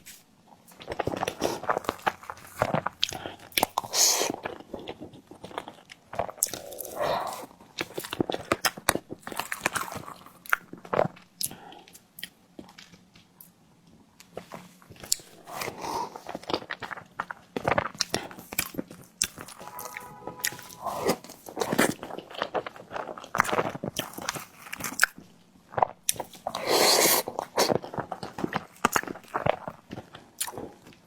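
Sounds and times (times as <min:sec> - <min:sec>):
biting and chewing: 0:00.0 - 0:13.6, 0:14.2 - 0:31.0
mouth clicks and smacks: 0:15.0 - 0:22.1.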